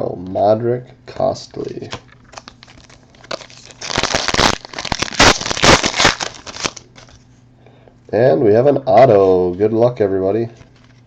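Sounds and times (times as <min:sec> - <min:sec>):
foil wrapper crinkling: 0:02.1 - 0:07.2.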